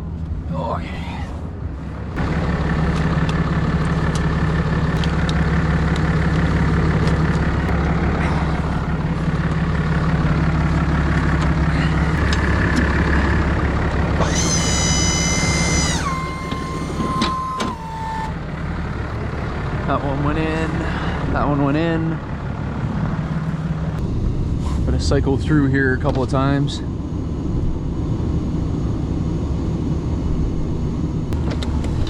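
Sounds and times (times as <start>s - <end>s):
heavy vehicle engine idling: 0.0s - 32.0s
high whine: 0.0s - 32.0s.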